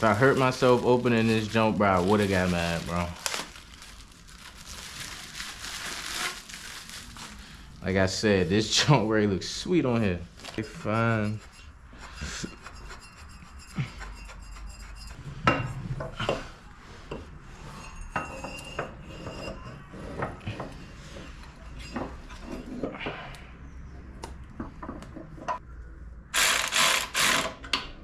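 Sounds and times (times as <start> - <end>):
metal tools clinking and scraping: 17.7 - 23.1.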